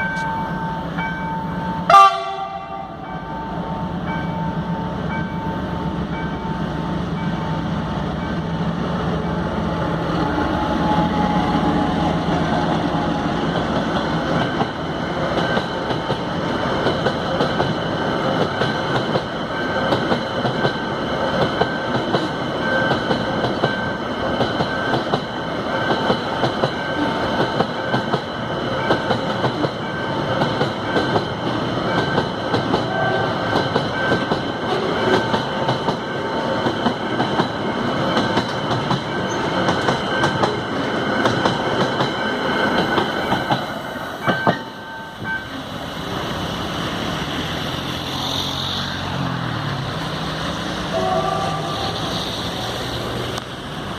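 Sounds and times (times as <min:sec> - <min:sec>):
diesel locomotive engine: 0:00.0 - 0:53.9
train wheels clickety-clack: 0:11.1 - 0:45.4
high wheel squeal: 0:47.8 - 0:49.3, 0:50.9 - 0:53.1.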